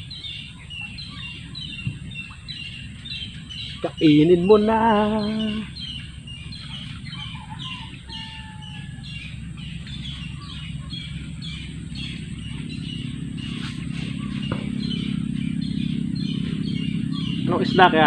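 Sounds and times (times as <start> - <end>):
bird chirping: 0.0 - 18.0
low steady rumble: 0.0 - 18.0.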